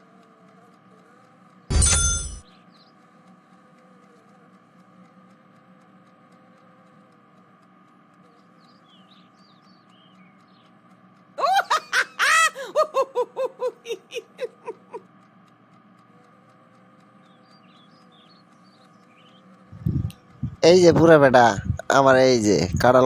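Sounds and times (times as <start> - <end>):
high-pitched laughing sound: 11.4 - 15.0
soft bird-like chirps: 17.2 - 19.6.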